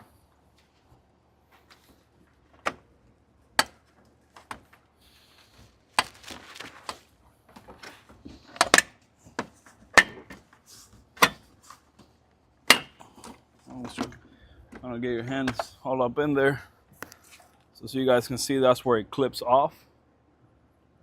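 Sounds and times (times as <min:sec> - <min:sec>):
plastic scraping and rustling: 0:03.9 - 0:08.6.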